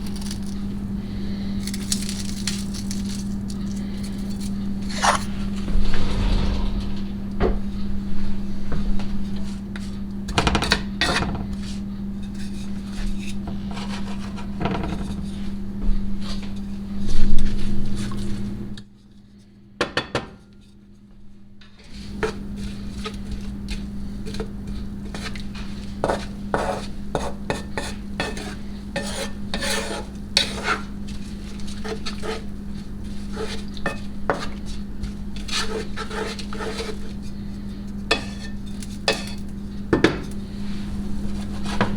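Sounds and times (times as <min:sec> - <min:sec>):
steady low hum: 0:03.2 - 0:09.9
utensil scraping and clinking pan: 0:38.1 - 0:39.5.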